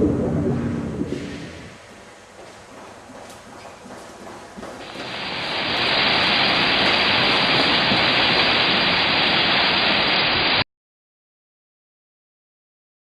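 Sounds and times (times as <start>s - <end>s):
rush of flowing water: 4.4s - 10.6s.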